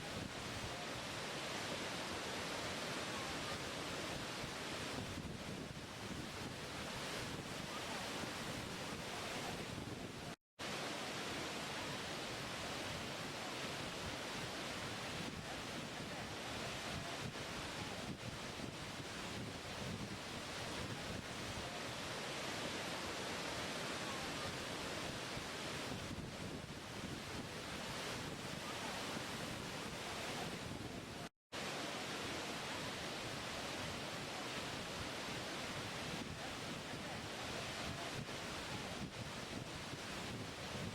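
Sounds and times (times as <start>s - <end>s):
falling water rushing: 0.0s - 5.0s, 10.6s - 18.2s, 21.6s - 26.0s, 31.6s - 39.1s.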